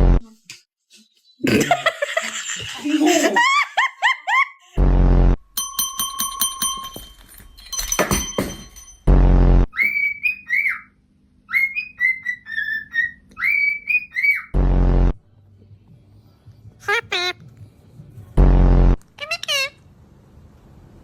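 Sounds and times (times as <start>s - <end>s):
loud buzzing blasts: 4.8s - 5.4s, 9.0s - 9.7s, 14.5s - 15.2s, 18.4s - 19.0s.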